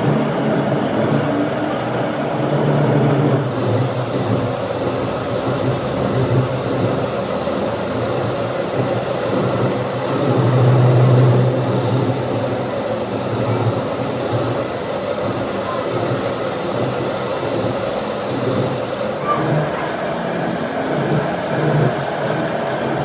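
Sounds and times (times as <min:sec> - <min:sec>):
workshop machinery humming: 0:00.0 - 0:04.3, 0:10.3 - 0:15.6, 0:19.0 - 0:23.0.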